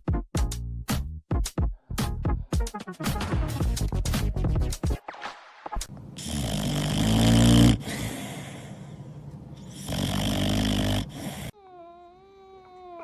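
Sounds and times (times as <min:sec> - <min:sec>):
loud snoring: 0:06.2 - 0:08.4, 0:09.7 - 0:11.6.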